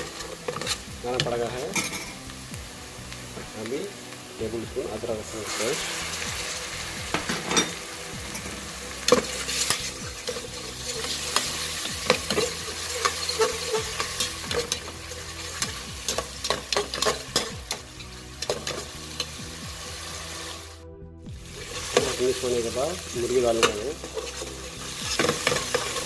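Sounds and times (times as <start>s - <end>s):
onions sizzling in hot oil: 0.0s - 26.0s
metal spoon scraping a pot: 7.2s - 19.4s, 23.6s - 26.0s.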